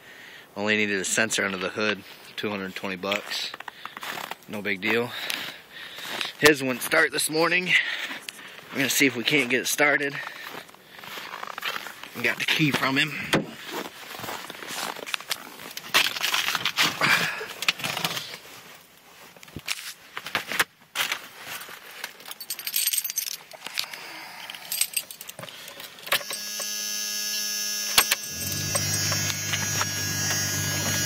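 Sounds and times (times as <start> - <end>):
keys jangling: 22.2 - 26.4, 28.0 - 29.3
low electrical hum: 26.0 - 31.0
electronic warning buzzer: 26.1 - 31.0.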